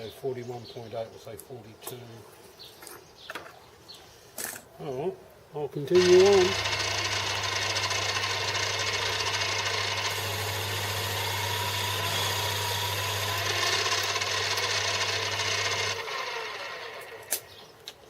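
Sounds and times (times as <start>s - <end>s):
lathe tool scraping metal: 6.0s - 17.2s
lathe motor hum: 6.0s - 17.3s.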